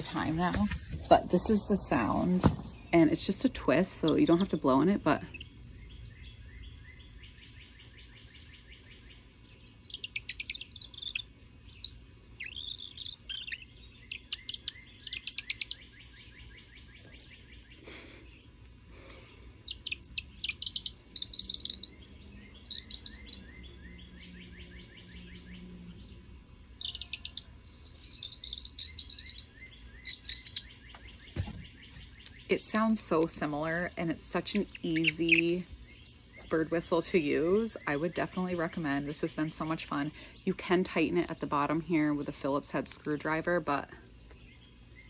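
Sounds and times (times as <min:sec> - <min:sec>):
faint chirping: 0:01.3 - 0:39.0
squeaky bird call chirps: 0:06.3 - 0:17.7, 0:19.6 - 0:26.0, 0:26.8 - 0:32.5, 0:34.5 - 0:35.6.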